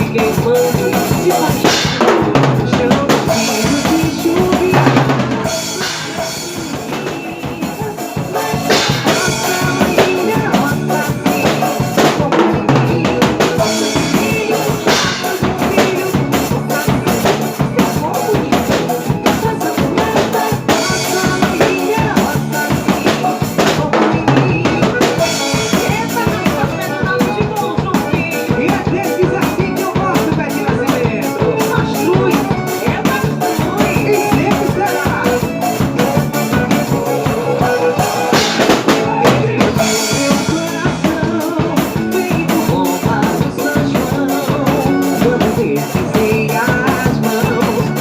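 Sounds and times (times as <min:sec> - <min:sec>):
drum kit playing: 0:00.0 - 0:48.0
recorded band music: 0:00.0 - 0:48.0.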